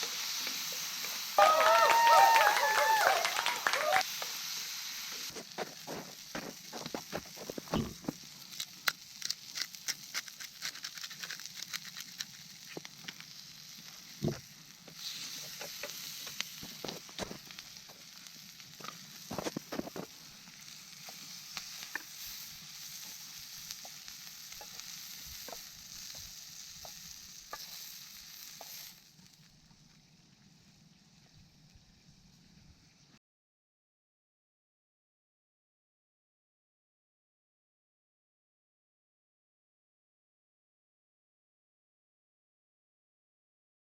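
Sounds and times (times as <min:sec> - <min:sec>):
sharp pops and crackles: 0:00.0 - 0:30.1
hot oil sizzling: 0:00.0 - 0:33.2.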